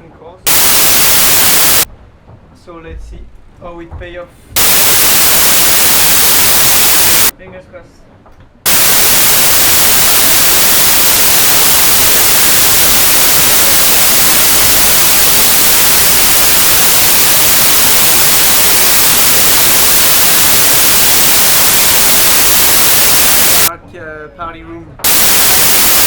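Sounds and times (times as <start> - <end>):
white noise static hiss: 0.5 - 1.9, 4.6 - 7.3, 8.7 - 23.7, 25.0 - 26.0.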